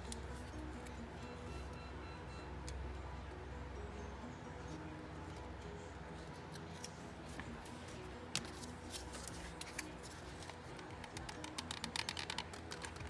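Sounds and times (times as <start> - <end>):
quiet background music: 0.0 - 13.0
wooden sticks clicking: 9.6 - 13.0.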